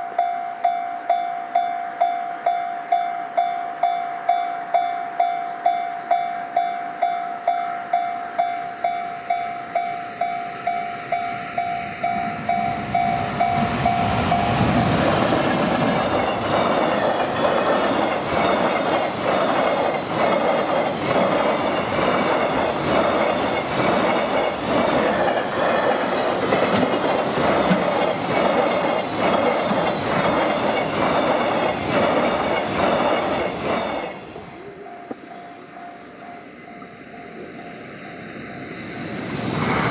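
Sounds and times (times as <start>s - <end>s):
freight train wheels clacking: 0.0s - 36.4s.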